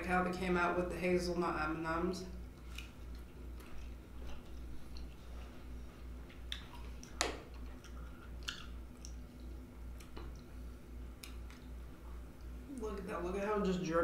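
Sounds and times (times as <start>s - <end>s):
person chewing: 2.4s - 11.7s
wet mouth clicks: 6.4s - 10.5s.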